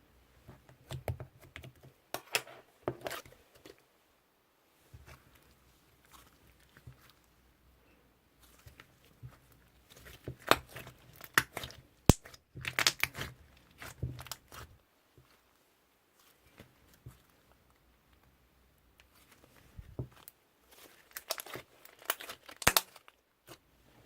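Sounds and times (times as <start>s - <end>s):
slime crackling: 8.4s - 14.7s, 20.7s - 23.6s.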